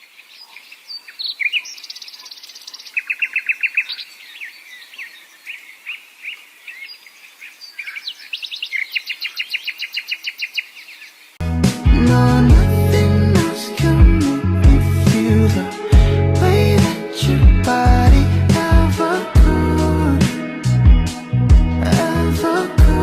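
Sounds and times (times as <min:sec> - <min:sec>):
songbirds singing: 0:00.0 - 0:11.4
bird trills: 0:00.1 - 0:11.3.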